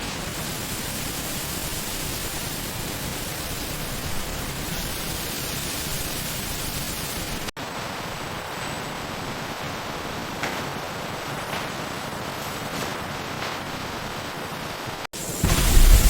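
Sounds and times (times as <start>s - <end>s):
steady loud hiss: 0.0s - 16.0s.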